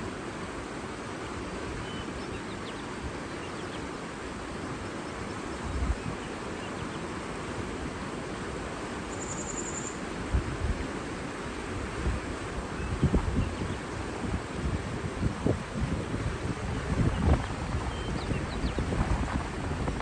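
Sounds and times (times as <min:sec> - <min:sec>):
rushing water: 0:00.0 - 0:20.0
wind buffeting microphone: 0:11.8 - 0:20.0.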